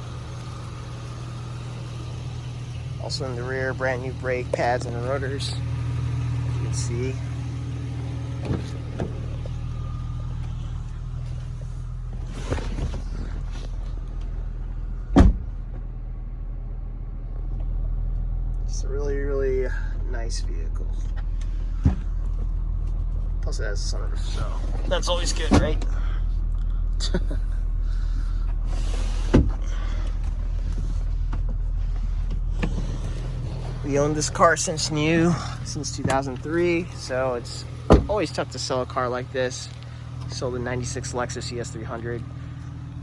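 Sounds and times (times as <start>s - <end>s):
car engine idling: 0.0s - 43.0s
loud thump: 15.1s - 15.6s, 37.8s - 38.2s.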